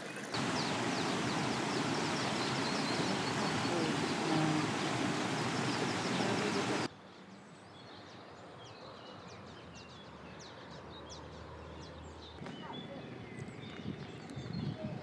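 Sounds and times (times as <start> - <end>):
small birds chirping: 0.0 - 6.9, 7.5 - 15.0
loud steady rushing noise: 0.4 - 6.9.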